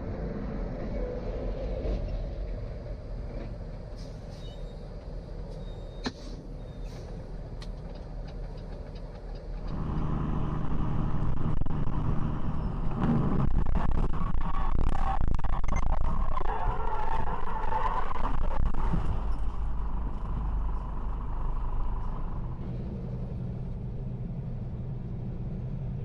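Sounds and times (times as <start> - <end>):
truck engine and road noise: 0.0 - 26.0
loud low engine hum: 6.1 - 16.3, 18.2 - 26.0.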